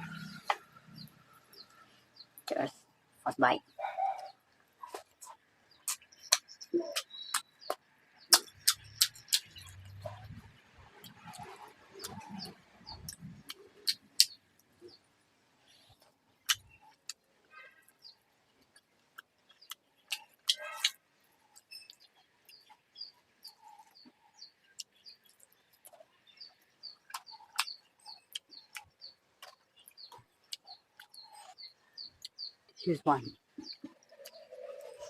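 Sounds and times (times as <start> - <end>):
small bird chirping: 3.3 - 15.0, 15.6 - 35.0
chewing with lip smacks: 26.9 - 32.4.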